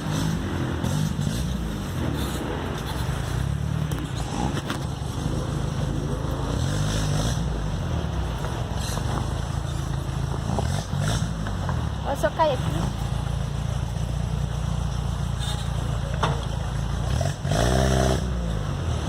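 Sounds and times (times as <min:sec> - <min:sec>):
buggy engine running: 0:00.0 - 0:19.0
knocks from rough ground: 0:15.6 - 0:16.8.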